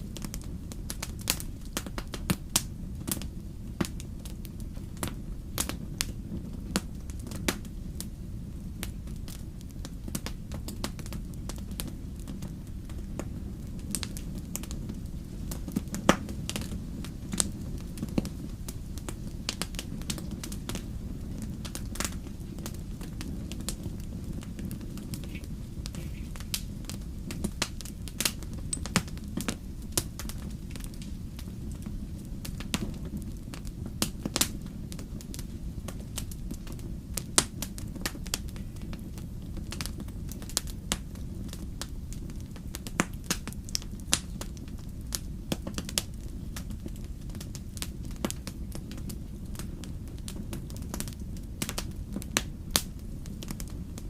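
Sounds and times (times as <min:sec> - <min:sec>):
burning logs popping and crackling: 0:00.0 - 0:54.0
low rumble of flames: 0:00.0 - 0:54.0.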